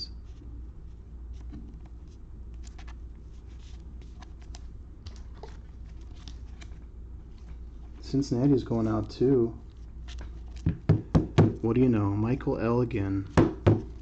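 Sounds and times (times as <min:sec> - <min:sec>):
steady low hum: 0:00.0 - 0:14.0
cards clicking and rustling: 0:01.3 - 0:07.6.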